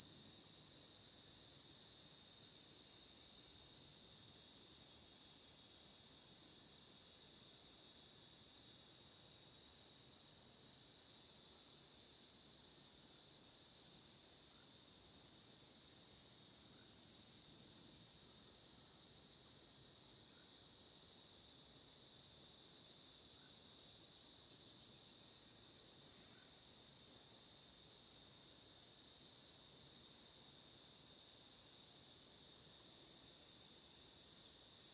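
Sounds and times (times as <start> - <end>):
crickets trilling: 7.8 - 34.9.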